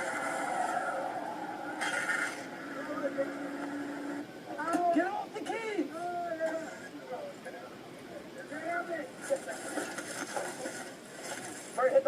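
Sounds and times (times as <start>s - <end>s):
truck engine droning: 0.0s - 4.3s.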